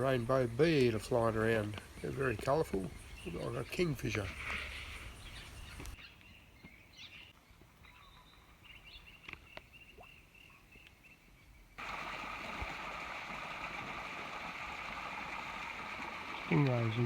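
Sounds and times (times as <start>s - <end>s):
bird chirps: 1.8s - 11.6s
running water rushing: 11.8s - 17.0s.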